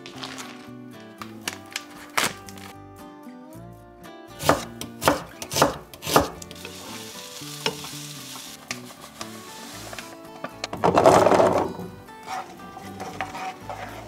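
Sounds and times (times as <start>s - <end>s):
onions sizzling in a frying pan: 6.0s - 10.1s.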